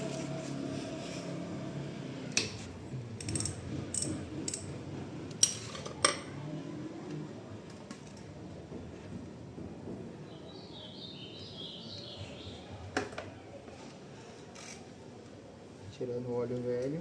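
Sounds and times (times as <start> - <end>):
ratchet metallic clicks: 3.2 - 4.7.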